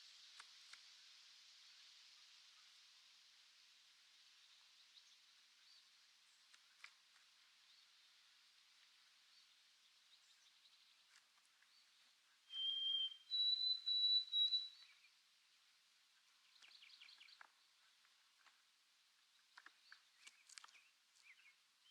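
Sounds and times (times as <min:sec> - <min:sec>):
faint short bird chirps: 0:12.4 - 0:15.1
sparrow whistled song: 0:12.4 - 0:15.2.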